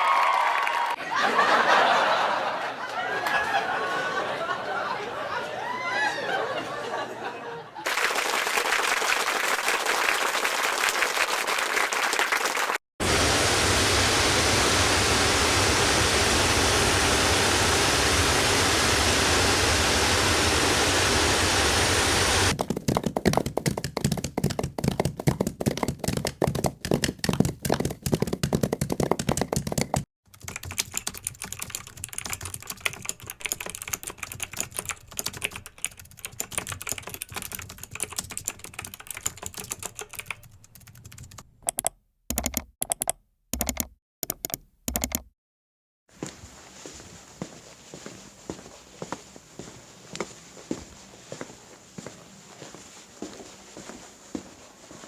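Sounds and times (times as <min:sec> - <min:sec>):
loud hiss of noise: 0:13.0 - 0:22.5
fast dense patter: 0:22.4 - 0:30.0
keyboard typing: 0:22.5 - 0:45.3.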